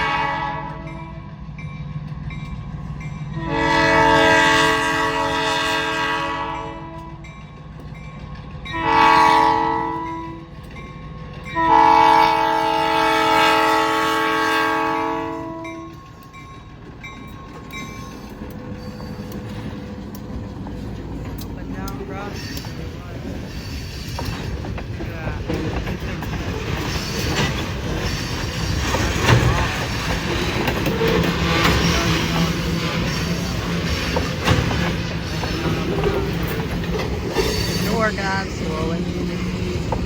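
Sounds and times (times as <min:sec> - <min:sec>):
locomotive air horn: 0:00.0 - 0:01.3, 0:03.3 - 0:07.2, 0:08.7 - 0:10.5, 0:11.6 - 0:16.0
passing train rumble: 0:00.0 - 0:40.0.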